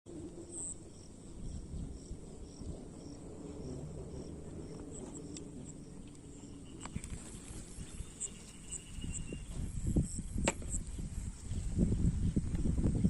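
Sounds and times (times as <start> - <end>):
steady high drone: 0.1 - 10.1
insect chirping: 0.1 - 12.4
low rumble: 0.1 - 13.0.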